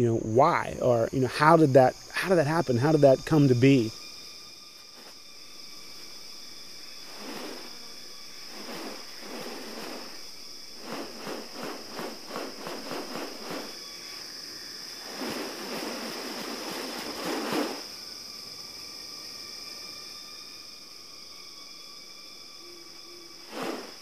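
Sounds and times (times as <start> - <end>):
insects droning: 0.0 - 24.0
quick rasping pulses: 8.5 - 13.8.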